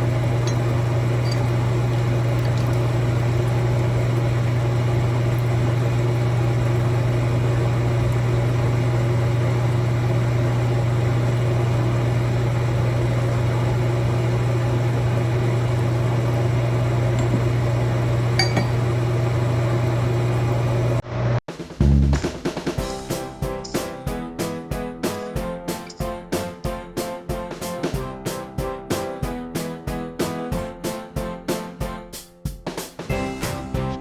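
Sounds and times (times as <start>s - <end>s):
machine motor humming: 0.0s - 21.0s.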